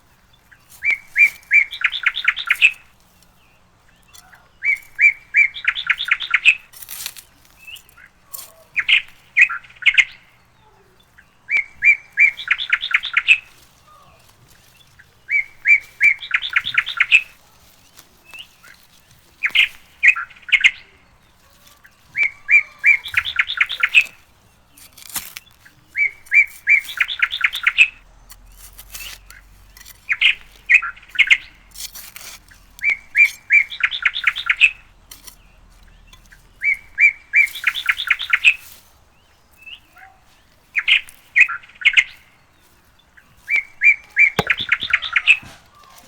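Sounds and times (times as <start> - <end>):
songbird singing: 0.0 - 46.0
sharp clicks: 44.4 - 45.0.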